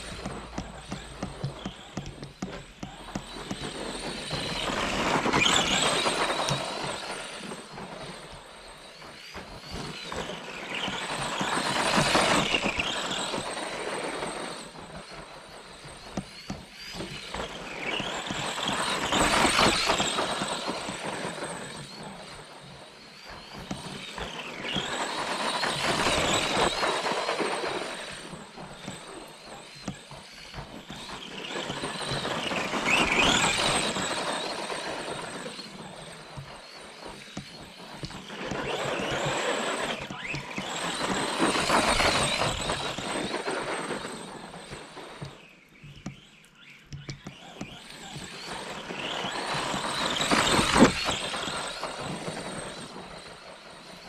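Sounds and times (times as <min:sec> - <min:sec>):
toy truck electric motor whining: 0:00.0 - 0:54.0.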